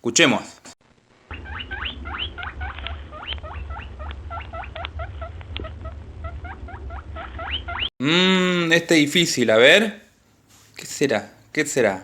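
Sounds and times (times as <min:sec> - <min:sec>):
steady low hum: 0:00.3 - 0:09.4
rabbit squeaking: 0:01.3 - 0:07.9.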